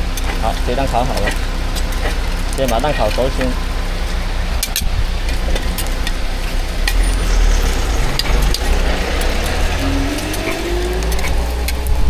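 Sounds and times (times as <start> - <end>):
low rumble: 3.5 - 12.0.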